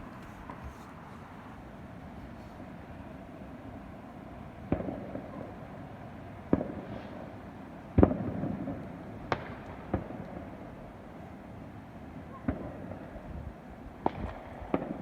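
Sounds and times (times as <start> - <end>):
fireworks bangs: 0.0 - 1.0.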